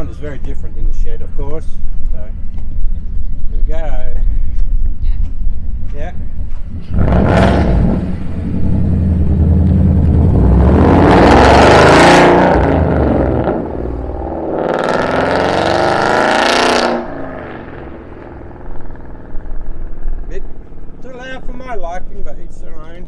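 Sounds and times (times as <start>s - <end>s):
car engine accelerating: 6.4s - 22.4s.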